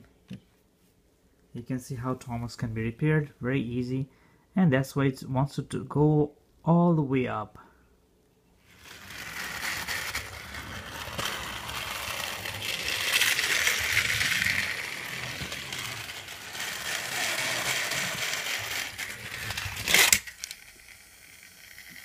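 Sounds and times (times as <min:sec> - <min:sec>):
toy train crashing: 0:08.7 - 0:22.0
toy train motor whirring: 0:08.7 - 0:22.0
toy train wheels rattling: 0:08.7 - 0:22.0.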